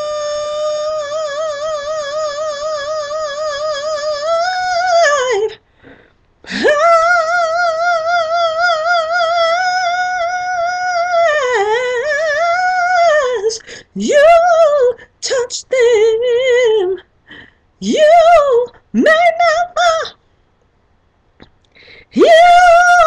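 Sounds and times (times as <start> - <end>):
woman singing with vibrato: 0.0 - 5.6, 6.5 - 20.2, 22.0 - 23.0
singer breathing in: 5.6 - 6.6, 21.7 - 22.1.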